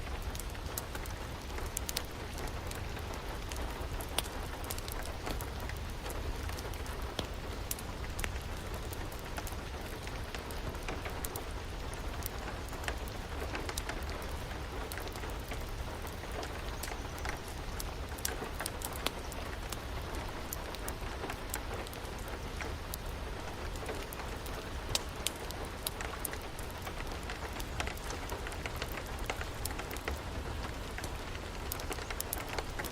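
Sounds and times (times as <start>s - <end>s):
rain falling: 0.0s - 32.9s
wood fire crackling: 0.0s - 32.9s.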